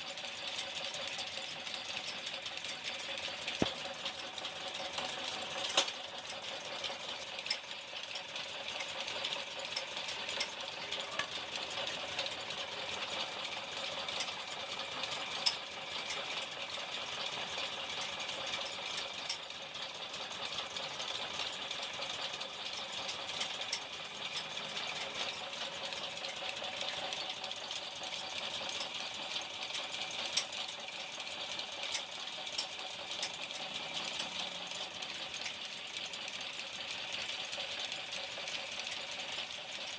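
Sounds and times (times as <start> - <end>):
workshop machine rattling: 0.0 - 39.9.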